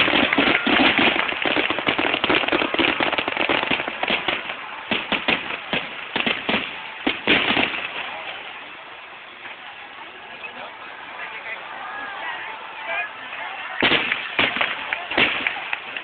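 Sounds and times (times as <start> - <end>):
strong firework bang: 0.0 - 8.0, 13.8 - 15.6
fireworks crackling and banging: 0.0 - 16.0.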